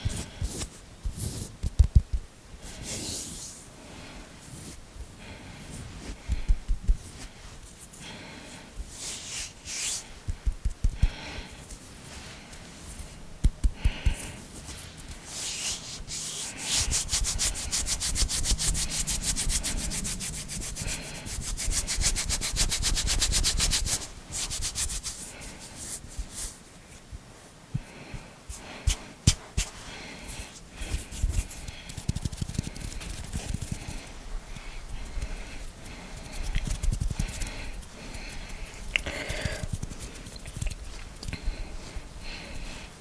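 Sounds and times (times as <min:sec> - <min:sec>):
hands rubbing together: 0:08.9 - 0:26.7, 0:28.5 - 0:42.9
fingers tapping: 0:13.4 - 0:14.2.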